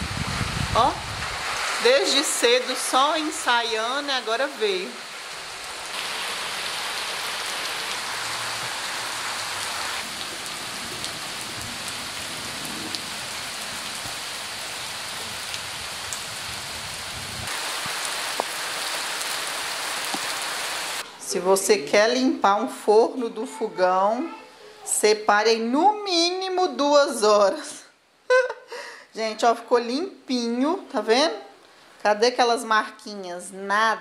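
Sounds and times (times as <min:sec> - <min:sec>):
heavy rain hiss: 0:00.0 - 0:21.7.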